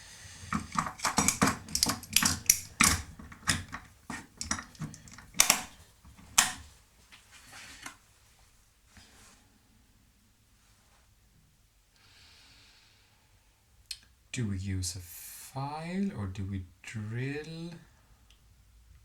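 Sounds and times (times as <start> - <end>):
tools clacking on a workbench: 0.4 - 6.7.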